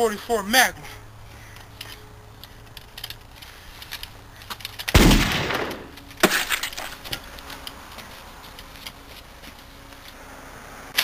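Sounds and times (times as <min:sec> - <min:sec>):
gunshots: 0:04.9 - 0:06.5.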